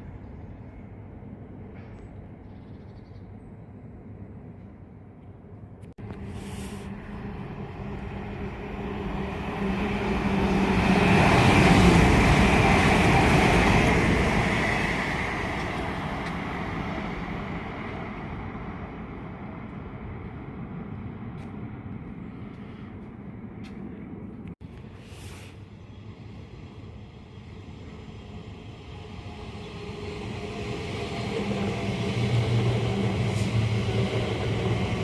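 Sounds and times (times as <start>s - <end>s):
train passing: 6.0s - 35.0s.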